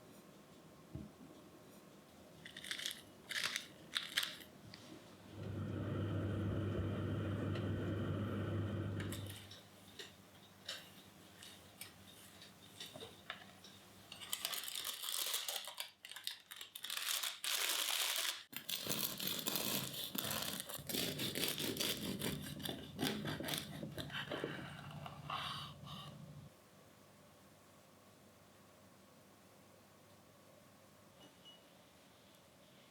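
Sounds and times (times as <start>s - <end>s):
faint low hum: 20.8s - 32.9s.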